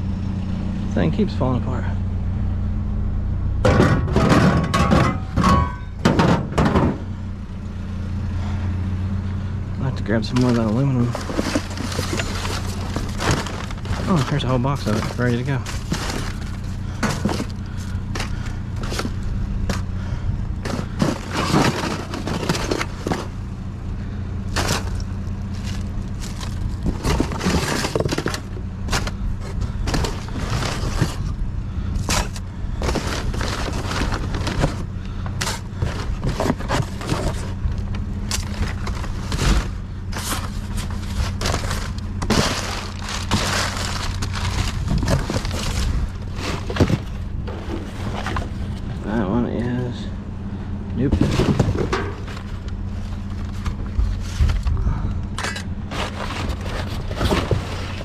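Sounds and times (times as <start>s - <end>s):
steady low hum: 0.0s - 58.0s
metal scrap clattering: 3.6s - 7.1s, 10.2s - 19.9s, 20.6s - 23.4s, 24.5s - 31.4s, 32.0s - 37.6s, 38.2s - 48.8s, 51.1s - 54.6s.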